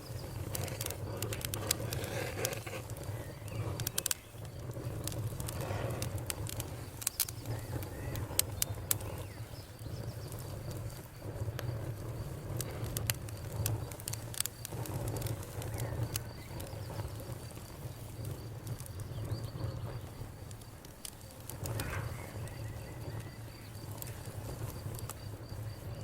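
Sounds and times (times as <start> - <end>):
campfire flames rumbling: 0.0 - 26.0
fire crackling and popping: 0.0 - 26.0.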